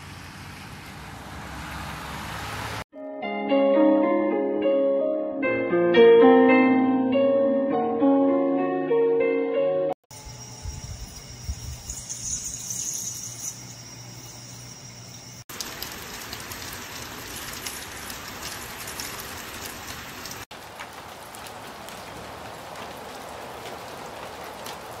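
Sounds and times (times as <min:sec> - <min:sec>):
water splashing down rain chain: 0:15.2 - 0:25.0
steady rain: 0:15.5 - 0:25.0.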